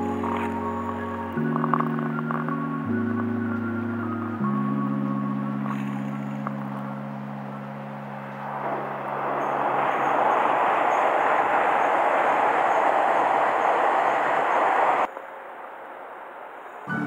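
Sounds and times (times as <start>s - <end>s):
train wheels rumbling on rail: 8.4s - 15.1s.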